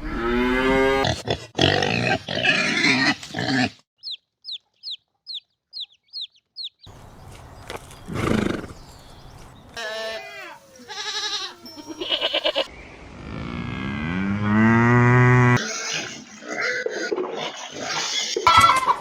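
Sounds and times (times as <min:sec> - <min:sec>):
cow mooing: 0:09.8 - 0:12.7.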